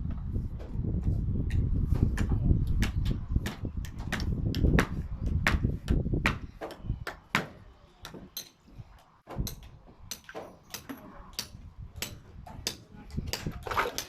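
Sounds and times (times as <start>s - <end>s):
hammers striking nails into timber: 2.2s - 8.6s, 9.3s - 13.5s.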